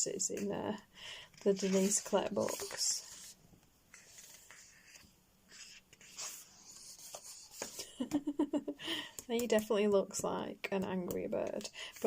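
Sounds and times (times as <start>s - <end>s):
paper pages rustling: 1.4s - 8.0s.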